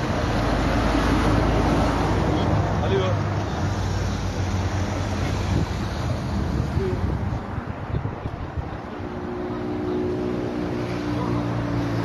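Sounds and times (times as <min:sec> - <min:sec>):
wind buffeting the microphone: 0:04.9 - 0:09.4.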